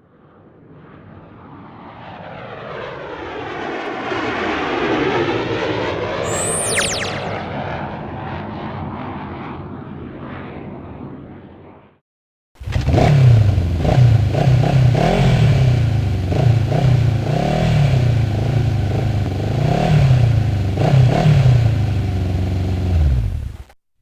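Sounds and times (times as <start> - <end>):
whistle dropping in pitch: 6.2 - 7.5
aircraft engine rushing past: 6.2 - 8.1.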